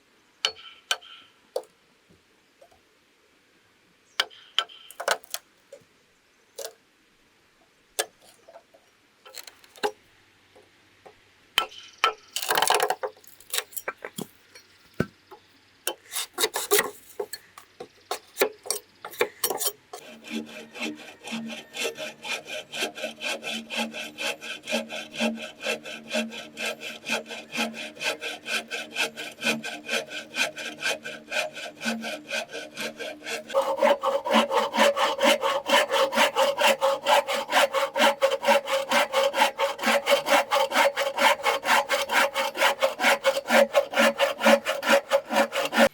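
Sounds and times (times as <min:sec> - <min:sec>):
saw cutting bamboo: 0:09.3 - 0:09.9, 0:12.4 - 0:14.2, 0:15.9 - 0:45.9.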